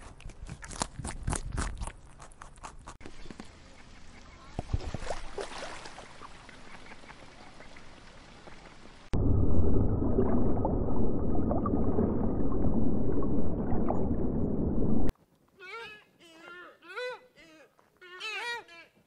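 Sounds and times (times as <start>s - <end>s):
water bubbling and rushing: 7.2s - 15.1s.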